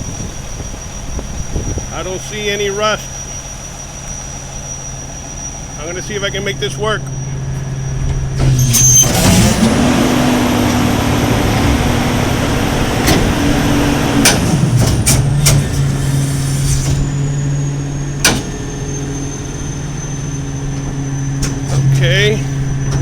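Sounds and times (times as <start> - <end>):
diesel truck engine: 0.0 - 23.0
hydraulics working: 0.0 - 23.0
sharp metallic clunks: 7.0 - 17.3, 18.0 - 19.8, 20.6 - 23.0.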